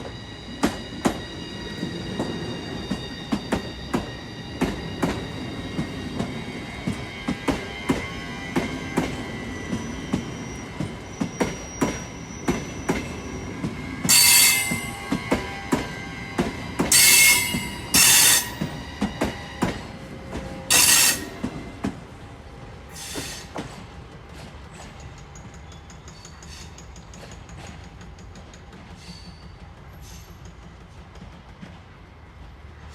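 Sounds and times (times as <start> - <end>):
high squealing hiss from wheels: 0.0 - 19.6, 20.7 - 21.5, 22.9 - 23.6, 25.7 - 27.0, 28.9 - 30.6
train wheels clacking over rail joints: 2.2 - 22.0, 23.0 - 32.1.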